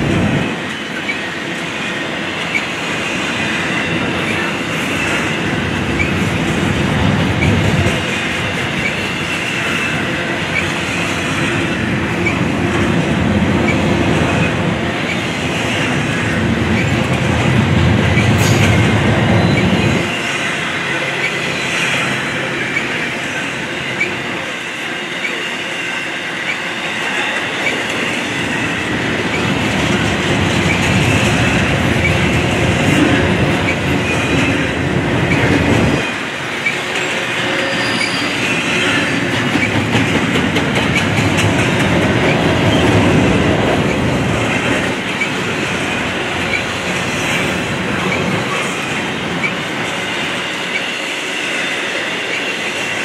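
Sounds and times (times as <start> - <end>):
freight train wheels clattering: 0.0 - 53.0
wheel squeaks: 37.6 - 38.7.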